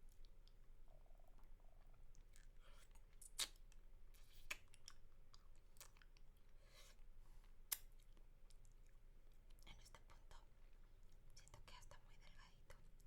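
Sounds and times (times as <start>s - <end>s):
mouth licking and sucking: 2.4s - 5.0s.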